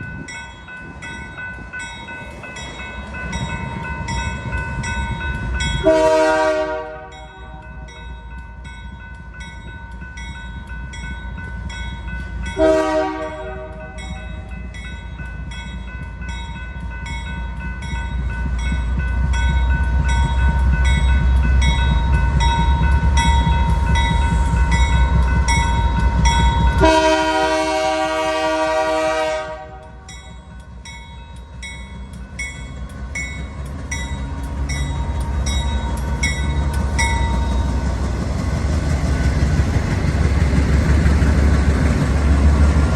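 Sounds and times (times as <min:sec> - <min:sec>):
diesel locomotive rumble: 0:00.0 - 0:42.9
locomotive air horn blasts: 0:05.8 - 0:07.6, 0:12.6 - 0:14.0, 0:26.8 - 0:30.1.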